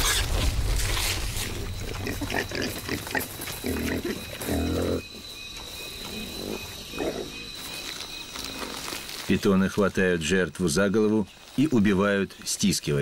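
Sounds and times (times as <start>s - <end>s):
rustle of dry leaves: 0.0s - 4.8s, 5.7s - 13.0s
hogs grunting: 1.8s - 5.2s, 6.1s - 7.6s.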